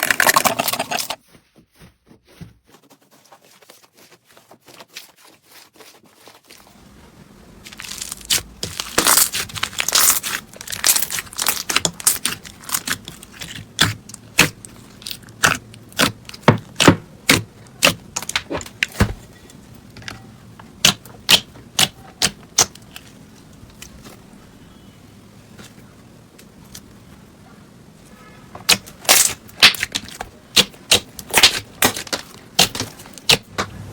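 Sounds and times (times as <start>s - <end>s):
slime crackling: 7.6s - 18.8s, 28.7s - 33.5s.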